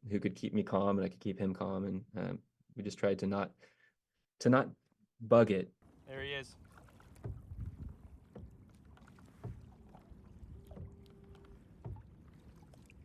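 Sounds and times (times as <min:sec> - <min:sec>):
paddle splashes and knocks: 0:05.8 - 0:13.0
water sloshing against kayak: 0:05.8 - 0:13.0.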